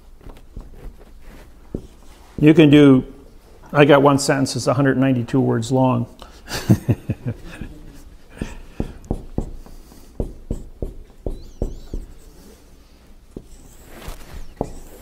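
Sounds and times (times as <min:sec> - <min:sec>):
marker tapping on whiteboard: 0:08.4 - 0:12.2, 0:14.5 - 0:15.0
marker squeak: 0:10.5 - 0:12.6, 0:13.4 - 0:15.0.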